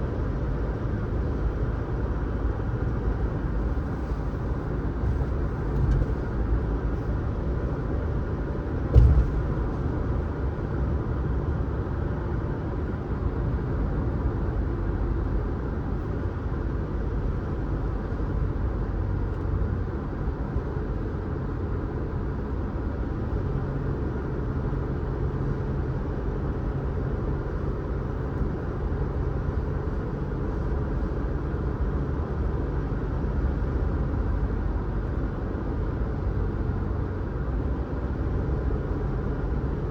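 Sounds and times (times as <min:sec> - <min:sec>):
car tyres and engine rumbling: 0:00.0 - 0:39.9
thump: 0:05.7 - 0:06.3, 0:08.8 - 0:10.2.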